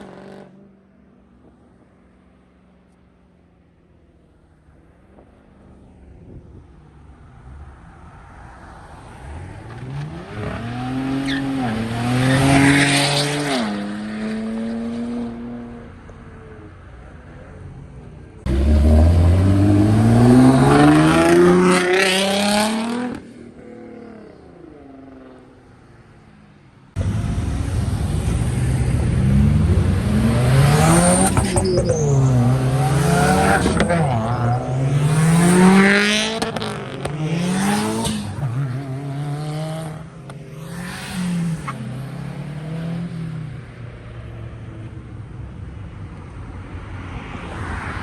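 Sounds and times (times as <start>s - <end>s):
car engines accelerating hard: 18.3s - 25.6s, 26.9s - 43.7s.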